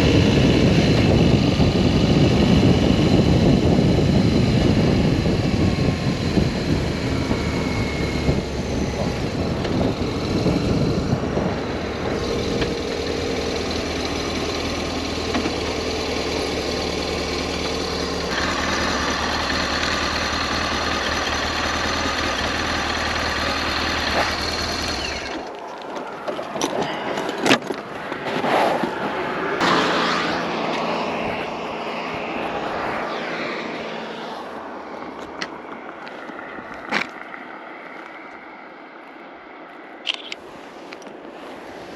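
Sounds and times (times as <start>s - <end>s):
motorcycle engine running: 0.0s - 25.6s
wind and road noise: 0.0s - 41.9s.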